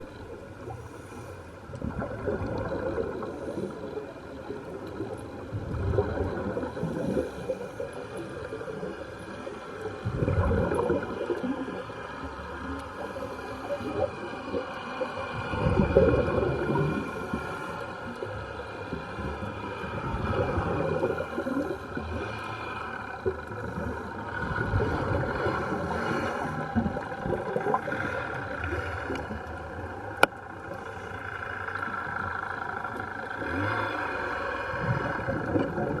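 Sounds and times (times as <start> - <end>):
steady held droning tones: 0.0 - 36.0
churning low rumble: 15.4 - 36.0.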